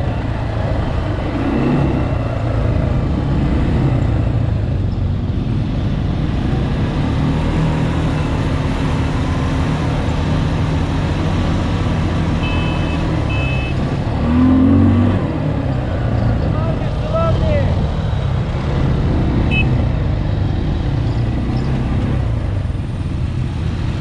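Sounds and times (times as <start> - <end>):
atv engine running: 0.0 - 24.0
wind and road noise: 0.0 - 24.0
short high beeps: 12.4 - 13.8.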